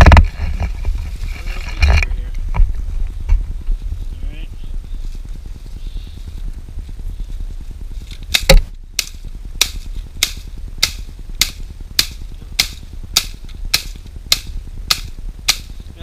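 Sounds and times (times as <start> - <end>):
low steady hum: 0.0 - 16.0
blade chopping tree trunk: 8.3 - 15.7.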